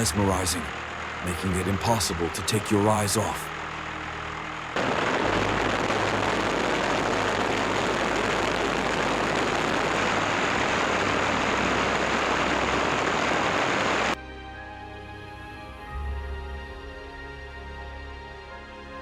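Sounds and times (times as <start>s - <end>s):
aircraft engine and airflow: 0.0s - 3.8s, 4.4s - 14.2s.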